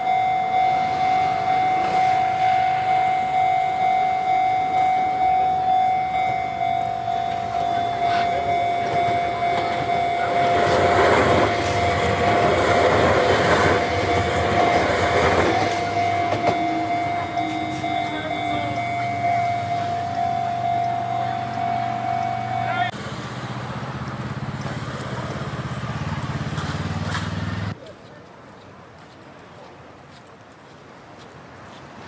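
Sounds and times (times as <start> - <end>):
level crossing warning bell: 0.0 - 23.0
train rumble and wheel noise: 0.0 - 27.8.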